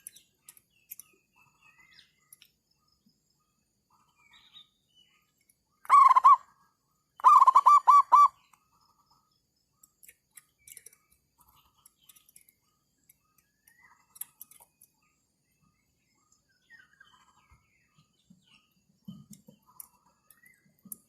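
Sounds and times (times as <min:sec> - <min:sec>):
faint chirps and clicks: 0:00.0 - 0:21.0
dove cooing: 0:05.9 - 0:06.5, 0:07.2 - 0:08.4.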